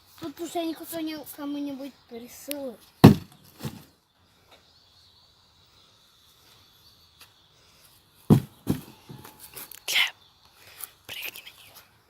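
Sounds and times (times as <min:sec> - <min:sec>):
faint high steady whine: 0:01.7 - 0:11.6
hammer hitting cardboard box: 0:03.0 - 0:03.8, 0:08.3 - 0:09.2.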